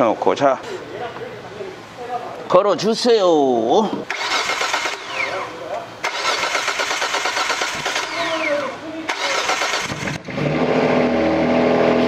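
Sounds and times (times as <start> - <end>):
loud car engine idling: 4.0 - 10.6.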